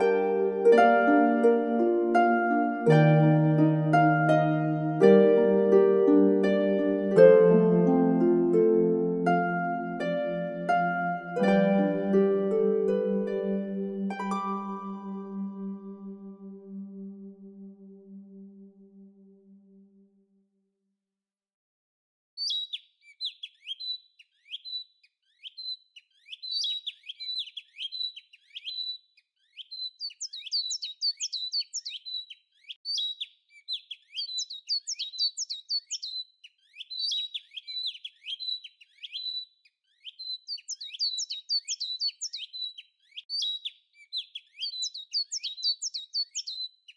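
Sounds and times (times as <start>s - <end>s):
birds chirping: 22.4s - 46.9s.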